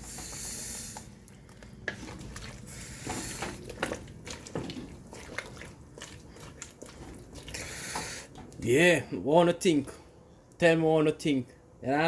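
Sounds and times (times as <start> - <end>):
chicken squishing in a pot: 0.0 - 9.0.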